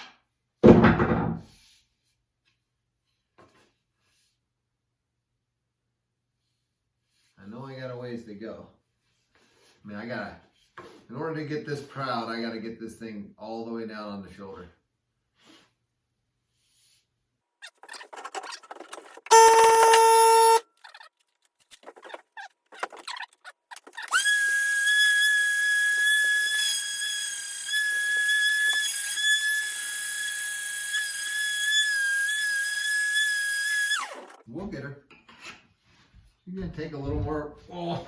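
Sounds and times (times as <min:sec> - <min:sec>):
power tool whining: 0:18.3 - 0:20.6, 0:23.8 - 0:34.4
loud steady tone: 0:19.3 - 0:20.6.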